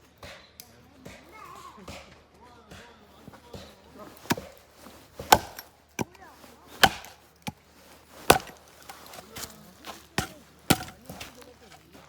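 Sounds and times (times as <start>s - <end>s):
axe chopping firewood: 3.2s - 12.0s
wood knocks: 5.2s - 6.1s, 6.8s - 7.6s, 8.2s - 9.5s, 10.2s - 11.4s.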